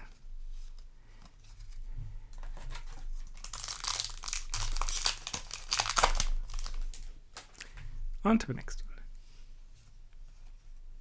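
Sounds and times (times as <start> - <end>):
foil wrapper crinkling and tearing: 2.6 - 7.7.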